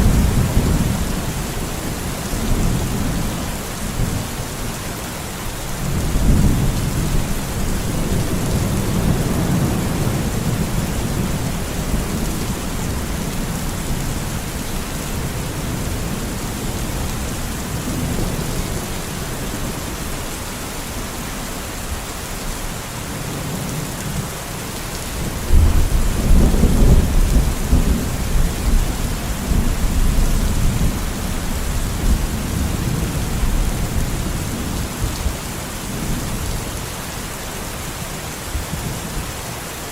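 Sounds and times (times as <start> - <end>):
steady rain: 0.0 - 39.9
thunder rumbling: 25.2 - 36.6.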